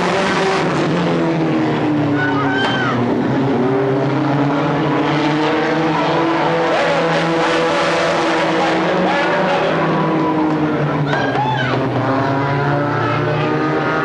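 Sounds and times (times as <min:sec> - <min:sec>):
racing car engines: 0:00.0 - 0:14.0.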